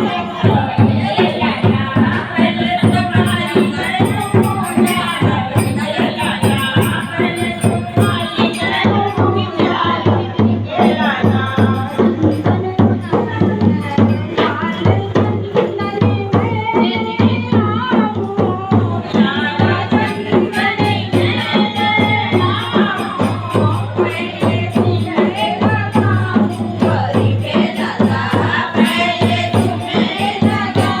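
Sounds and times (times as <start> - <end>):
fast hand percussion: 0.0 - 31.0
woman singing: 0.0 - 31.0
jingling rattle: 0.5 - 9.2, 10.8 - 14.2, 20.1 - 31.0.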